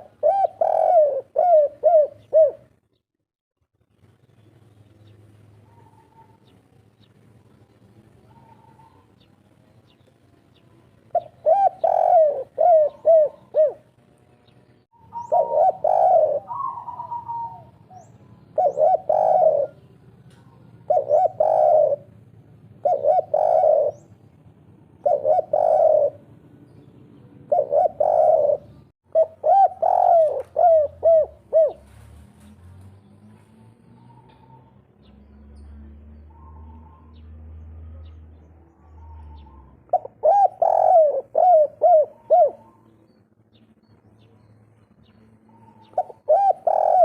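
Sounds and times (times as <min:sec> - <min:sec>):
dove cooing: 0:00.0 - 0:02.8, 0:05.6 - 0:06.5, 0:08.2 - 0:09.2, 0:11.0 - 0:13.9, 0:15.0 - 0:26.6, 0:27.4 - 0:32.1, 0:38.0 - 0:43.0, 0:45.4 - 0:47.0.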